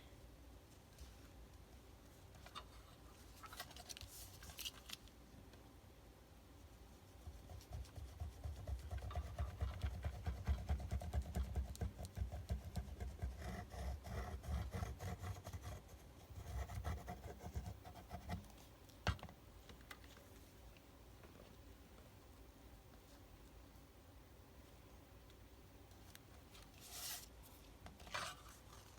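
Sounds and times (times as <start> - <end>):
paper rubbing and rustling: 3.2 - 5.1, 26.5 - 27.4.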